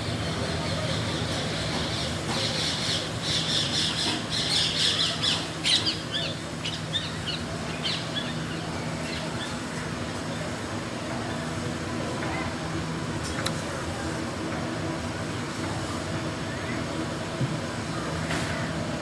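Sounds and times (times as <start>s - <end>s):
steady low hum: 0.0s - 19.0s
birds squawking and chirping: 0.2s - 9.6s.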